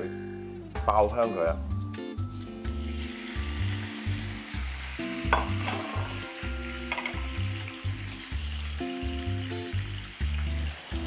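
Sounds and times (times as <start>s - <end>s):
chicken wings sizzling in oil: 2.6s - 11.0s.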